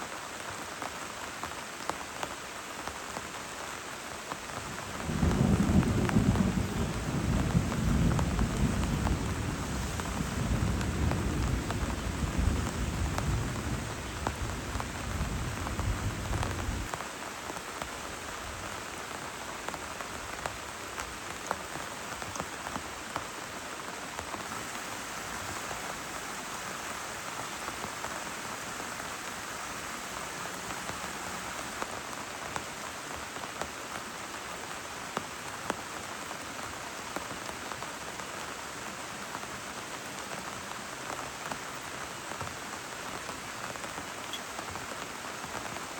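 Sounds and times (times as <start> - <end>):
heavy rain falling: 0.0 - 45.9
thunder rumbling: 4.7 - 16.9.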